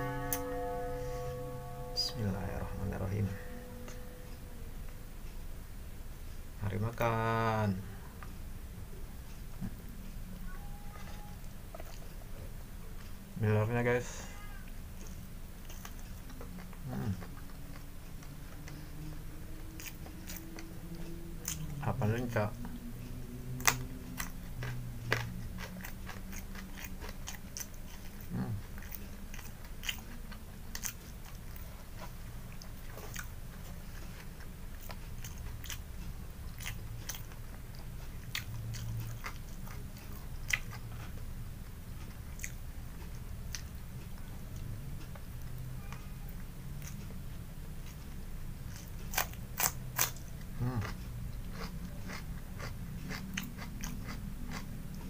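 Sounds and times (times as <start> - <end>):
crunchy chewing of raw vegetables: 14.7 - 22.5, 23.3 - 41.4, 47.8 - 55.0.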